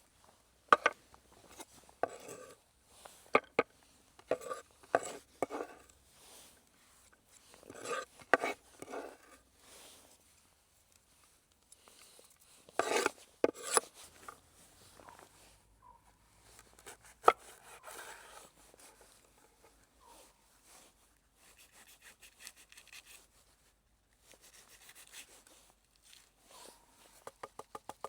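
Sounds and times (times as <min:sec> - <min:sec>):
scraping on wooden surface: 0:00.8 - 0:02.6, 0:04.3 - 0:05.8, 0:07.7 - 0:09.4, 0:12.8 - 0:14.4.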